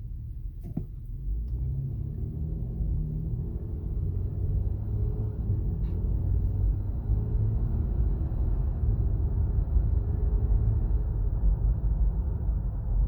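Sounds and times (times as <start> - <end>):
road and tyre rumble: 0.0 - 13.0.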